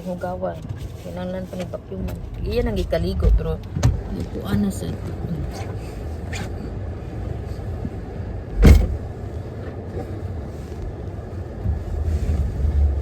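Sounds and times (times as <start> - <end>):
car engine and road rumble: 0.0 - 13.0
sharp thump: 8.6 - 9.0.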